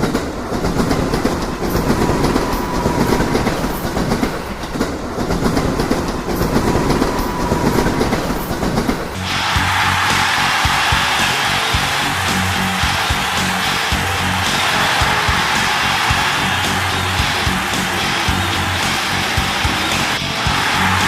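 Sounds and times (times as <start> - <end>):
train rumble: 0.0 - 21.0
train wheels clicking on track: 0.0 - 21.0
faint whine: 0.2 - 9.3.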